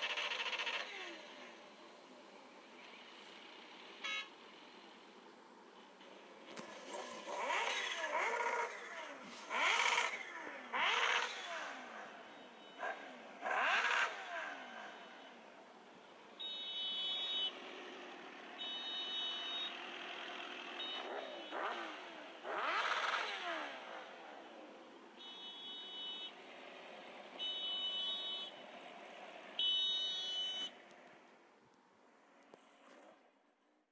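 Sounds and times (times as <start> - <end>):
road traffic: 0.0 - 33.9
vehicle passing: 6.1 - 15.6.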